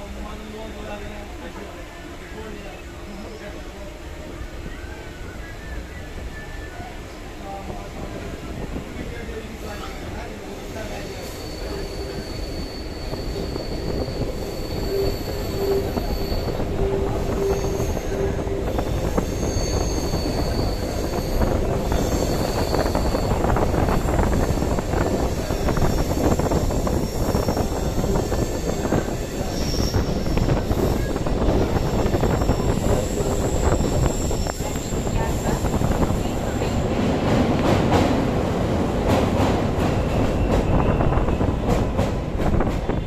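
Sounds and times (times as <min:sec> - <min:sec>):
wheels rumbling and rattling on rails: 0:00.0 - 0:43.0
train wheels squealing: 0:04.4 - 0:07.6, 0:09.6 - 0:36.9, 0:39.4 - 0:43.0.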